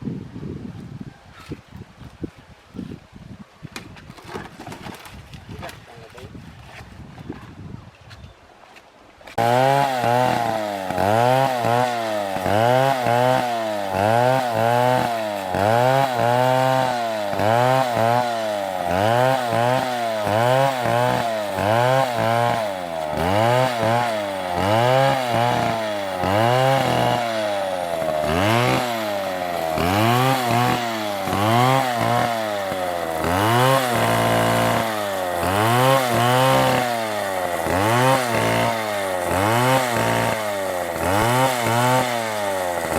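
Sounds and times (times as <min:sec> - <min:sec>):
chainsaw engine revving: 0:09.3 - 0:42.9.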